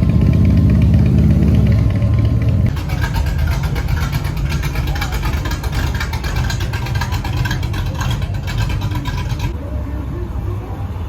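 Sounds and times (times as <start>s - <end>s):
car engine through exhaust: 0.0s - 11.0s.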